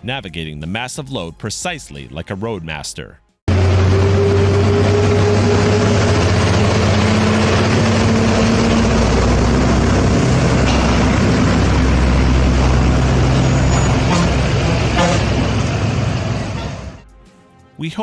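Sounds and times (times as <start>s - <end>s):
road noise: 3.5s - 17.0s
truck engine droning: 3.5s - 17.0s.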